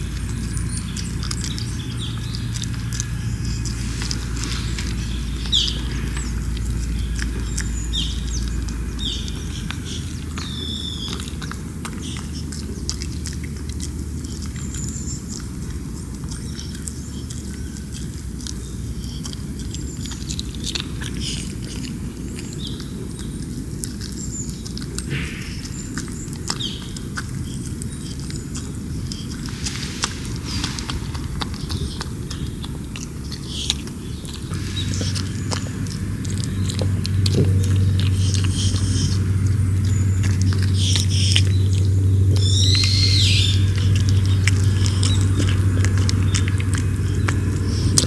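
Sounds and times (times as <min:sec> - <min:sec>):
low background rumble: 0:00.0 - 0:48.0
small birds chirping: 0:00.0 - 0:48.0.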